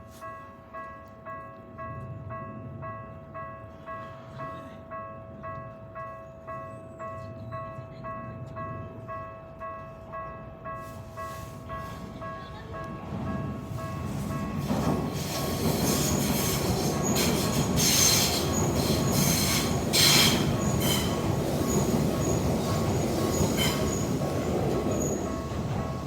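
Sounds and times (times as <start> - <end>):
crossing warning bell ringing: 0.0 - 26.0
train wheels rumbling on rails: 7.3 - 26.0.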